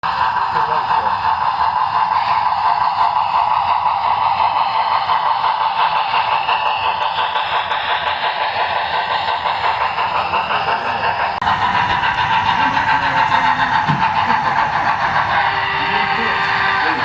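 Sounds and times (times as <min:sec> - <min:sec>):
train wheels rolling on rail: 0:00.0 - 0:17.0.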